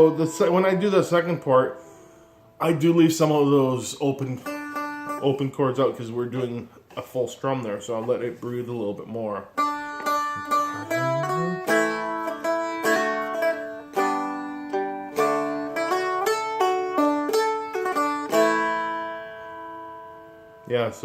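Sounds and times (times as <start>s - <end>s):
ukulele picked notes and strummed chords: 10.0s - 19.4s.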